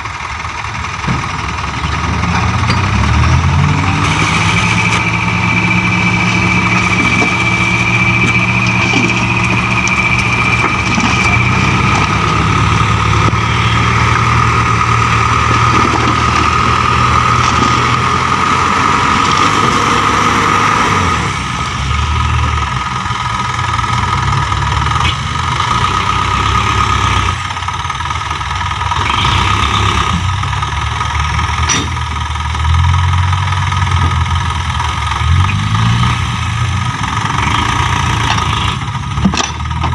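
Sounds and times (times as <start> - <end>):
diesel truck engines running: 0.0 - 39.9
high whine: 2.6 - 19.8.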